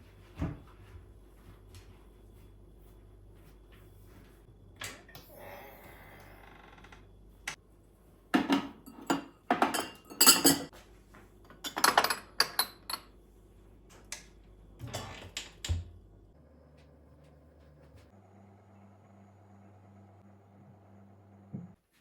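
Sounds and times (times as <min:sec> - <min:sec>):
dishes and cutlery clinking: 0:08.4 - 0:10.8.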